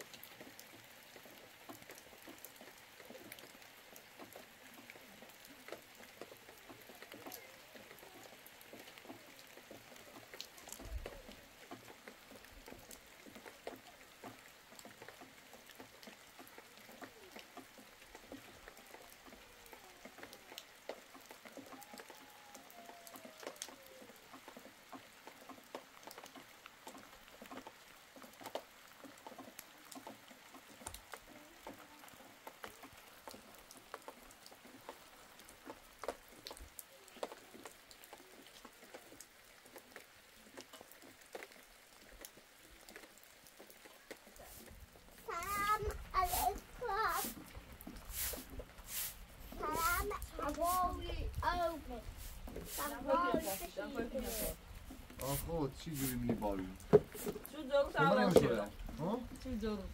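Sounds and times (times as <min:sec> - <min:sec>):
rain drops pattering: 0:00.0 - 0:59.9.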